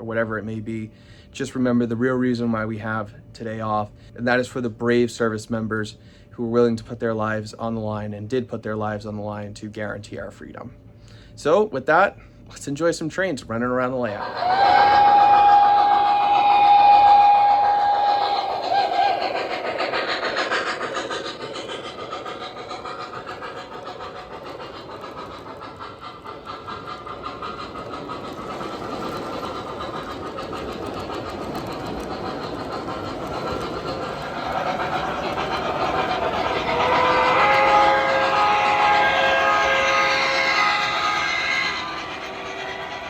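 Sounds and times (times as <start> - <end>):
train wheels rumbling over rails: 12.7 - 43.0
model train whistle: 14.3 - 19.2, 36.5 - 43.0.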